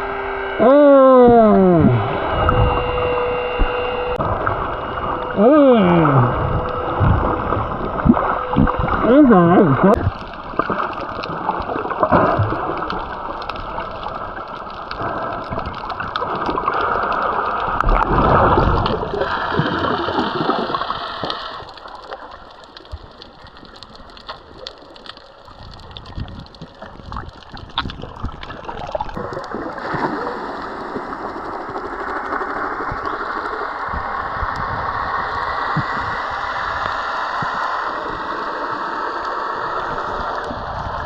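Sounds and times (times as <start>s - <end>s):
water sloshing and splashing: 6.2s - 34.7s.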